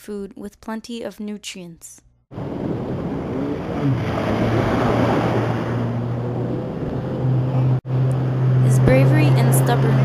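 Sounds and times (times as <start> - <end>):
engine low hum: 2.4 - 10.0.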